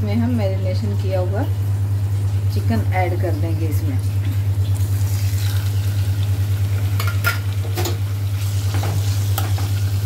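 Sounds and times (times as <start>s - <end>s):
steady low hum: 0.0s - 10.0s
chicken sizzling in hot oil: 4.3s - 10.0s.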